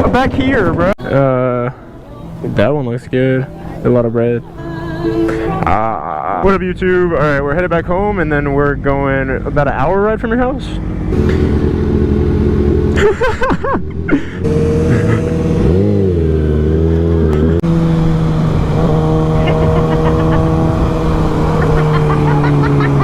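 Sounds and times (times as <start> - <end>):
motorcycle engine running: 1.4 - 23.0.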